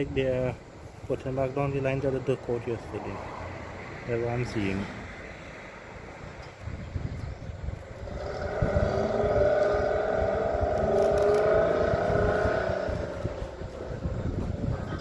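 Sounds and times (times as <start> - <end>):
heavy engine whining under load: 3.5 - 15.0.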